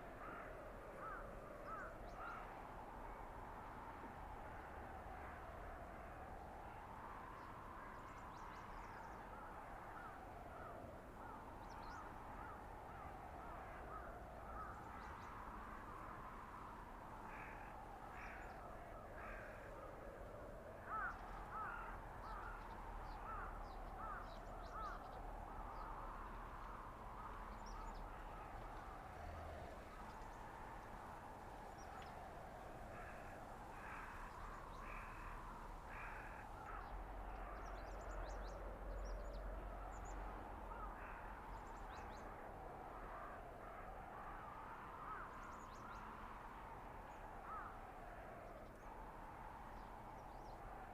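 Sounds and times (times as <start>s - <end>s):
blizzard wind howling: 0.0s - 50.9s.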